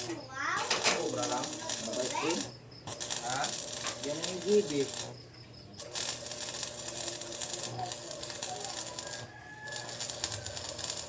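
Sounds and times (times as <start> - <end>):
ratchet wrench clicking: 5.8 - 11.0.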